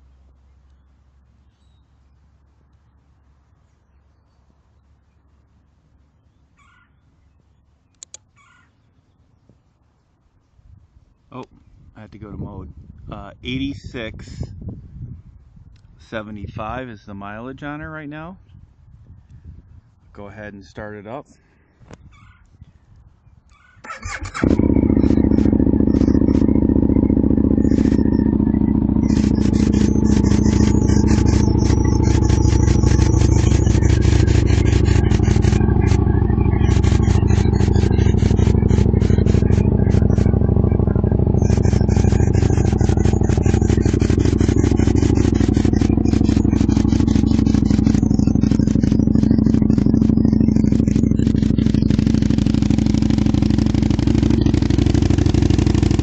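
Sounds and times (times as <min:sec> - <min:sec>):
motorcycle engine idling: 0:00.0 - 0:08.2, 0:23.8 - 0:56.0
fast mechanical ticking: 0:23.9 - 0:56.0.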